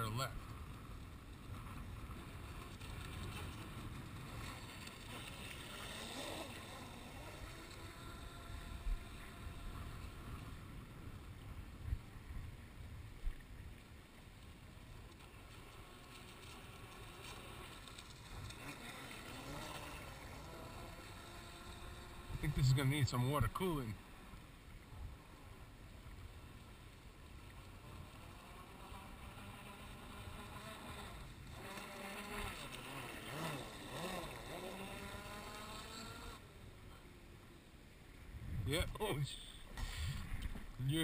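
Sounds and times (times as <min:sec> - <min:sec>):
rc boat motor whine: 0:00.0 - 0:11.5, 0:14.4 - 0:37.4
wind on microphone: 0:38.3 - 0:39.0, 0:39.8 - 0:41.0.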